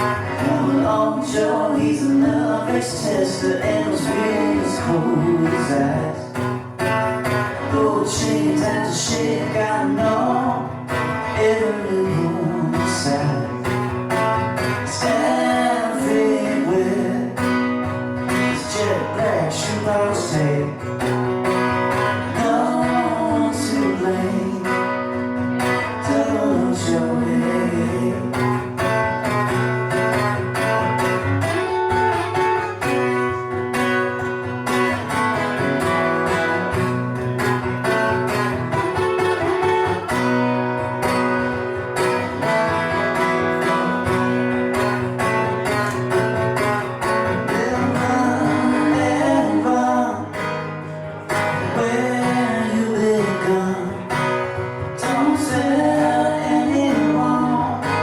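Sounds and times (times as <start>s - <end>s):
bending guitar melody: 0.0s - 58.0s
strummed guitar: 0.0s - 58.0s
live band music: 28.3s - 58.0s.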